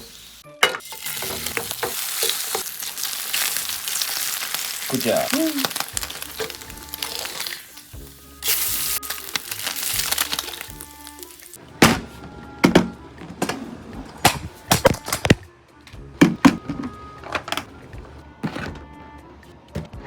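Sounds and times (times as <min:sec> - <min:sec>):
food sizzling in a frying pan: 0:00.0 - 0:11.6
background music: 0:00.0 - 0:20.0.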